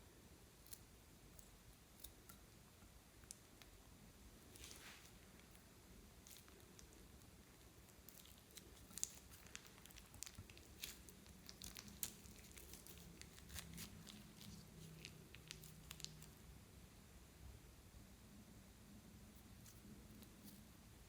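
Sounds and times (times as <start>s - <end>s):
plastic crinkles: 8.1s - 16.4s.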